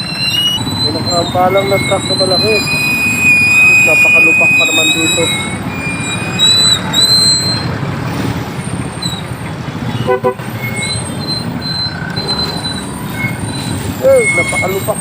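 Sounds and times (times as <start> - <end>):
thin high squealing tones: 0.0 - 9.4, 10.5 - 15.0
traffic engine rumble: 0.0 - 15.0
vehicle horn toot: 9.9 - 10.9.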